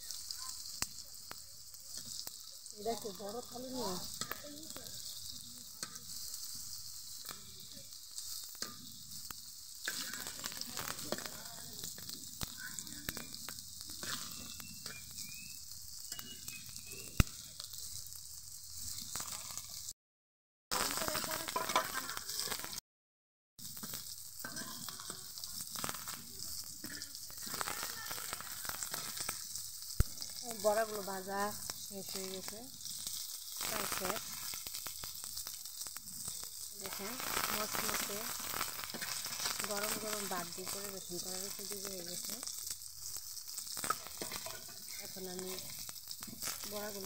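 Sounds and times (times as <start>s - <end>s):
fritters sizzling in oil: 0.0s - 20.0s, 20.7s - 22.8s, 23.6s - 47.0s
metal spatula scraping pan: 3.7s - 7.5s, 9.8s - 11.3s, 14.0s - 15.3s, 21.1s - 22.7s, 24.4s - 25.2s, 38.8s - 40.8s, 43.7s - 46.7s.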